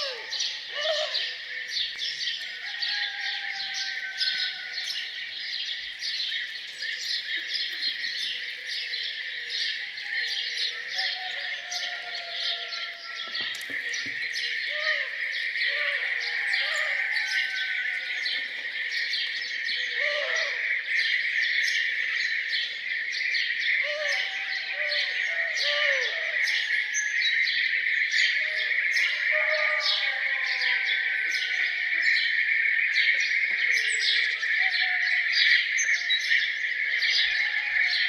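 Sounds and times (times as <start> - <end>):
birds chirping and singing: 0.0 - 38.0.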